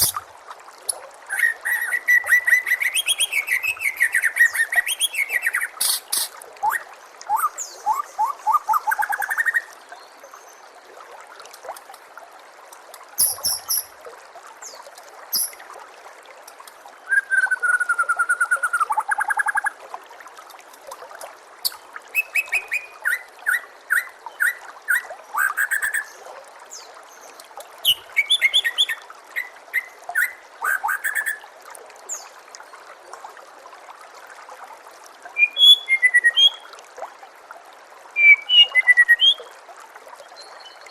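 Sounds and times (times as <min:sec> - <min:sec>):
songbird singing and whistling: 0:00.0 - 0:00.2, 0:01.3 - 0:09.7, 0:13.2 - 0:13.9, 0:17.0 - 0:19.6, 0:22.1 - 0:26.1, 0:27.8 - 0:31.4, 0:35.4 - 0:36.6, 0:38.2 - 0:39.5
water trickling: 0:00.0 - 0:40.9.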